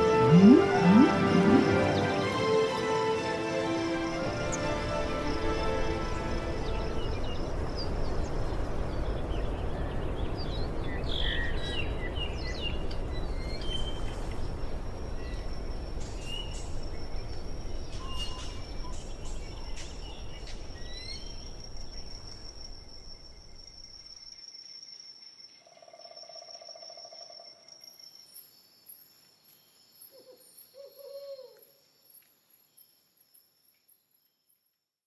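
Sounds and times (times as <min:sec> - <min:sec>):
insect high-pitched trill: 0:18.0 - 0:30.4.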